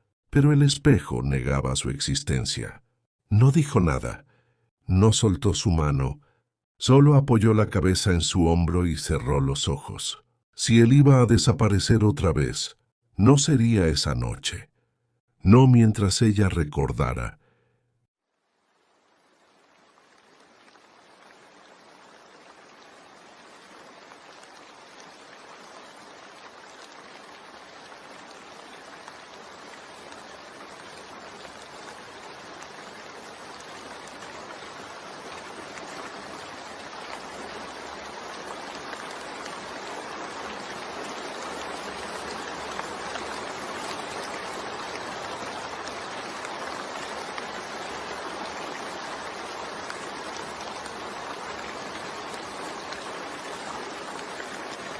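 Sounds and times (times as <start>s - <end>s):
steady rain: 18.2s - 54.9s.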